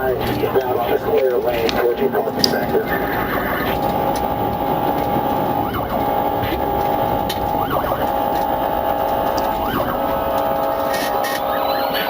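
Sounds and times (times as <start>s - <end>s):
background noise: 0.0s - 12.0s
police siren: 0.0s - 12.0s.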